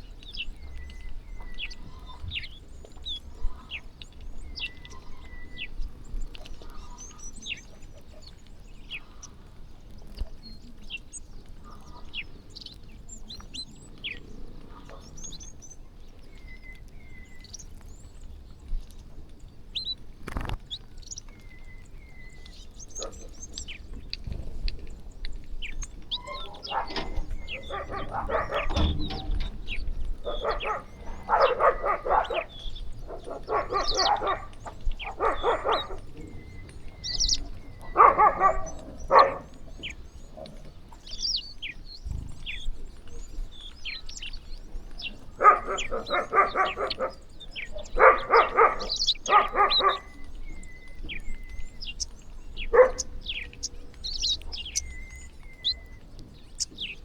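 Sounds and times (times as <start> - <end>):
flock of birds chirping: 0.0 - 57.0
harsh bird calls: 19.8 - 24.2, 24.9 - 57.0.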